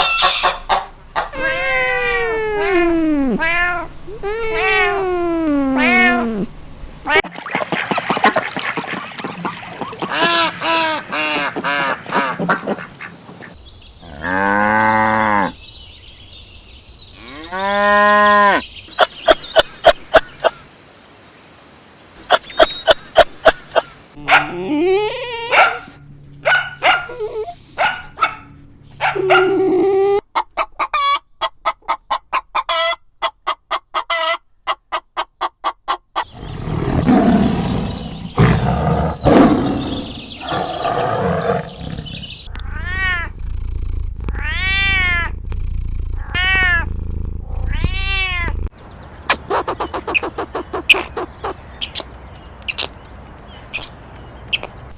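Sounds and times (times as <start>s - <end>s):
farm animal calls: 8.8s - 15.6s, 22.2s - 33.0s, 49.2s - 52.1s.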